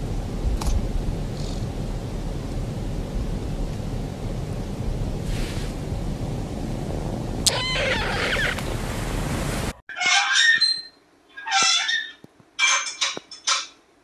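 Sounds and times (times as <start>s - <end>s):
rushing wind: 0.0s - 9.8s
cat meowing: 7.4s - 8.7s
short high squeak: 9.9s - 13.8s.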